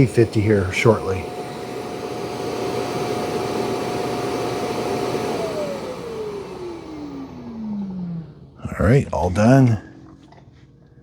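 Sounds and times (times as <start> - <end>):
suction motor whining: 0.0 - 8.6.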